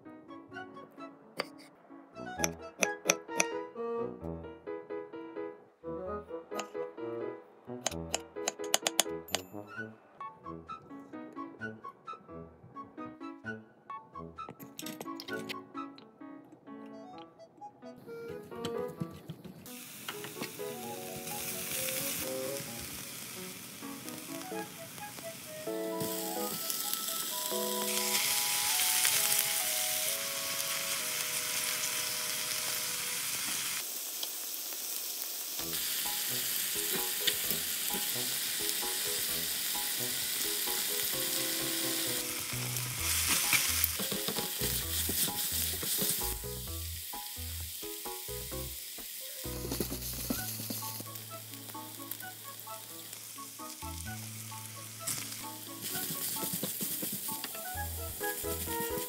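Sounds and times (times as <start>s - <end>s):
light background music: 0.0s - 32.1s, 35.6s - 59.0s
meat sizzling in hot oil: 19.7s - 59.0s.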